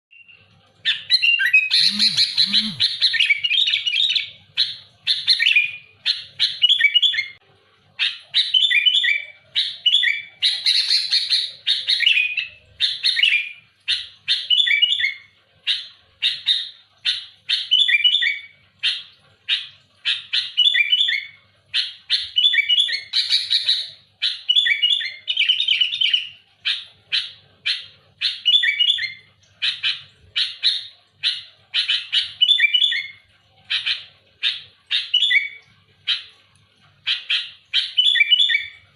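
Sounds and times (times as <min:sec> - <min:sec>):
bulbul singing: 0:01.0 - 0:07.4.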